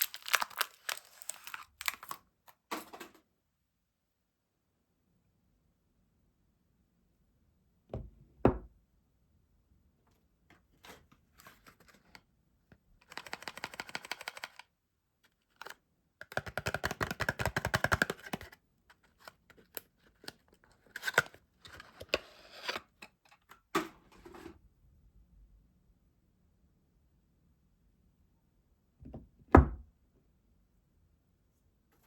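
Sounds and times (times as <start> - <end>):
packaging crinkling and rustling: 0.0 - 2.6.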